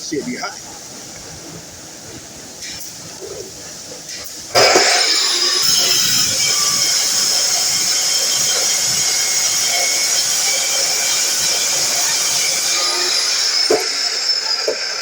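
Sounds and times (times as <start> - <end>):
miter saw cutting metal: 4.2 - 15.0.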